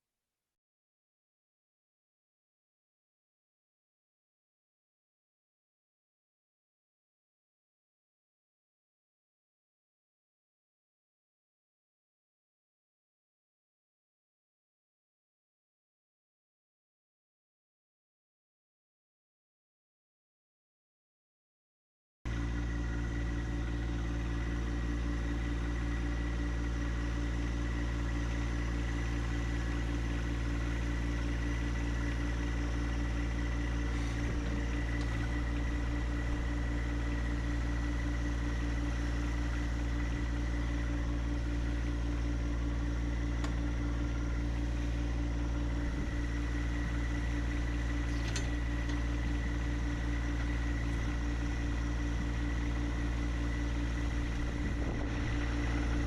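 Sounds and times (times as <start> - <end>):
engine idling: 22.3 - 56.0.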